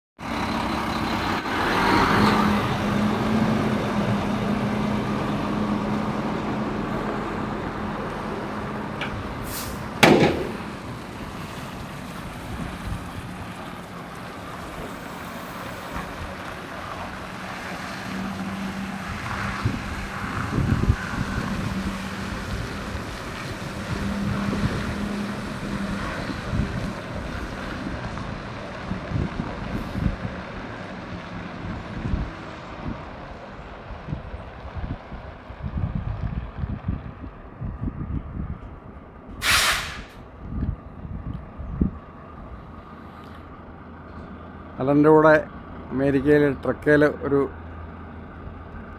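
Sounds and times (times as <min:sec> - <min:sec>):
truck engine humming: 0:00.2 - 0:35.4, 0:41.4 - 0:48.9
short loud sharp burst: 0:39.4 - 0:40.2.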